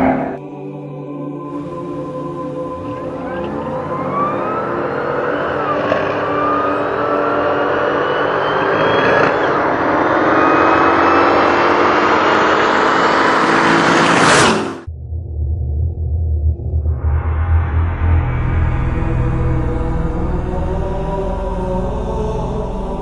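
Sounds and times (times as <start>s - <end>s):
drag race engine accelerating: 2.7s - 14.9s.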